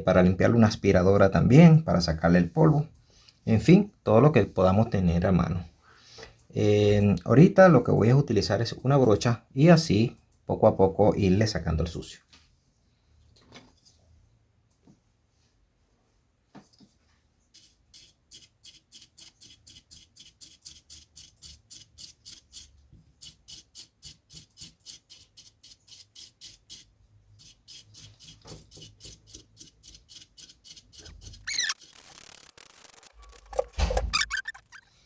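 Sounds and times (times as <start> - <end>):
squeak falling in pitch: 31.4 - 35.0.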